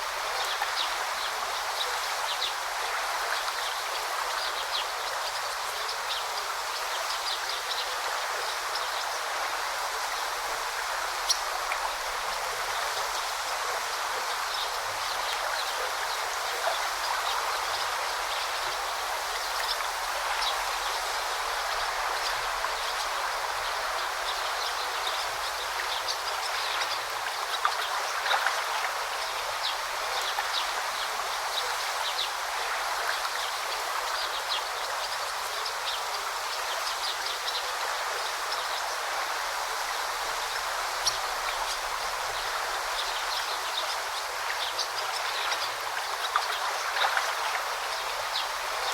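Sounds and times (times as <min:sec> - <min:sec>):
small splashes and trickles: 0:00.0 - 0:48.9
stream babbling: 0:00.0 - 0:48.9.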